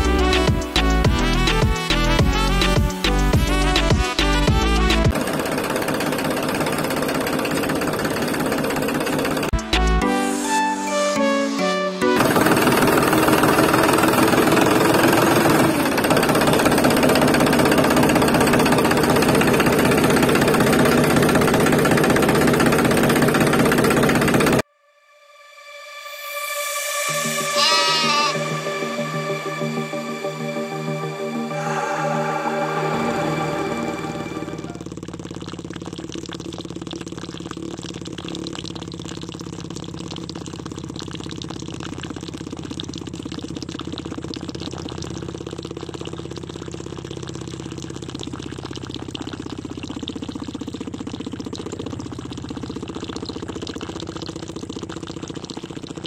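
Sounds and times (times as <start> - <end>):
water pump motor buzzing: 0.0 - 10.0, 12.1 - 24.6, 27.1 - 29.2, 30.4 - 56.0
tractor engine knocking: 5.0 - 9.6, 12.2 - 24.6
water pouring and splashing: 34.6 - 56.0.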